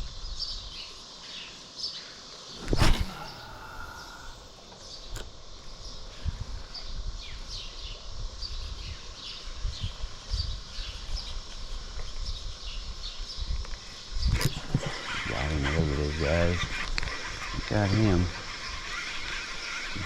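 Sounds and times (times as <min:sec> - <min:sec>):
small birds chirping: 0:00.0 - 0:20.0
dull thumps: 0:02.6 - 0:04.8.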